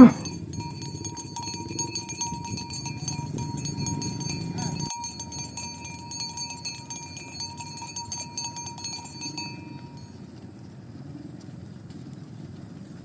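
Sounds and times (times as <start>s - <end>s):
cowbells clanking: 0.0s - 10.2s
low steady rumble: 0.0s - 13.0s.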